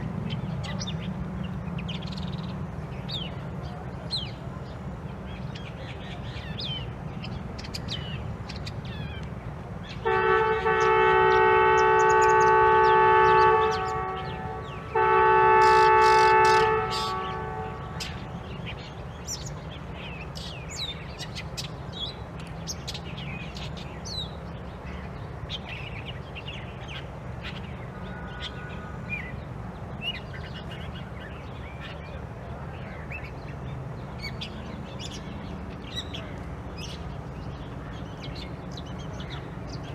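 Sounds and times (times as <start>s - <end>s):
horn-like tones: 10.0s - 18.2s.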